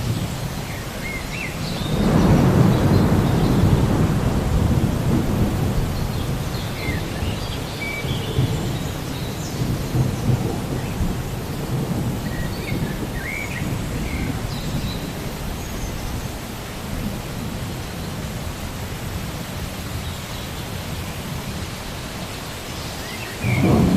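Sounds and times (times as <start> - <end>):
thunder rumbling: 0.0 - 18.6, 23.4 - 23.9
steady rain: 0.0 - 23.9.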